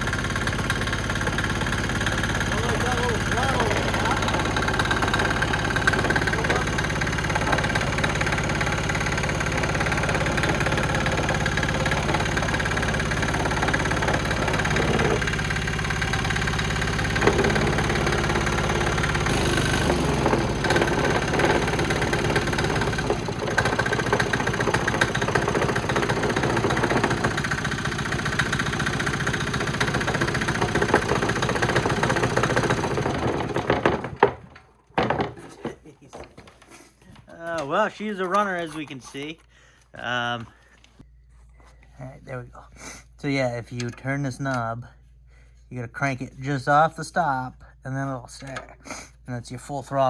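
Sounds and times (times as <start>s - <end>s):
diesel engine running: 0.0s - 34.1s.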